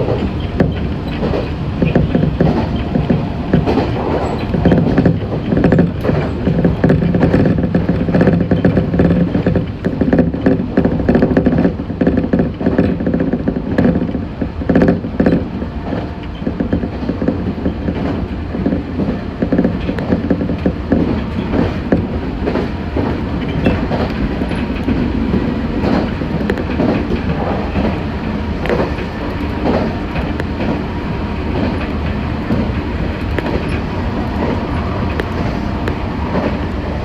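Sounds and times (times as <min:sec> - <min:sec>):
train running gear rumble: 0:00.0 - 0:37.0
wheel clicks over rail joints: 0:16.6 - 0:36.7.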